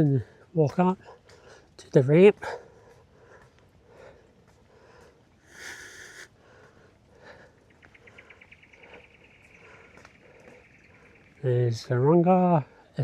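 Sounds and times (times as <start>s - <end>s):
breathy sniff: 4.8s - 6.8s.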